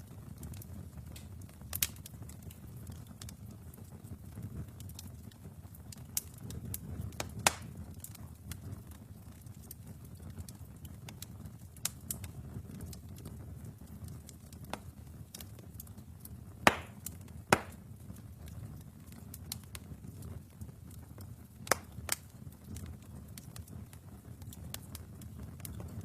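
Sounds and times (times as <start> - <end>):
burning logs popping: 0.0 - 26.0
wood fire crackling: 0.0 - 26.0.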